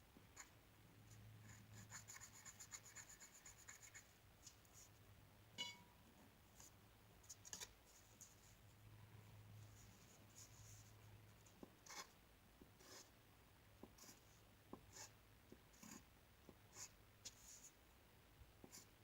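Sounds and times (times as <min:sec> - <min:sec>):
drawing tool scratching paper: 0:11.8 - 0:12.1, 0:12.8 - 0:13.1.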